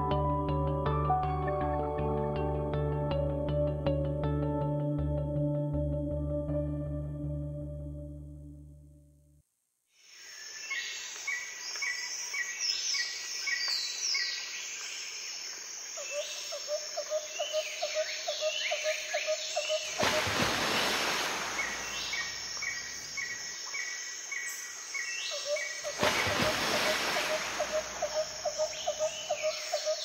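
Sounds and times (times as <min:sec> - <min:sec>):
low pulsing bird call: 0:25.3 - 0:30.0.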